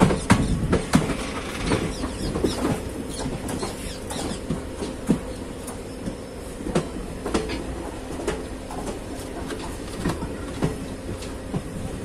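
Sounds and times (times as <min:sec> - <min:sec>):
train rumbling on track: 0:00.0 - 0:12.0
wheels knocking on rails: 0:00.0 - 0:12.0.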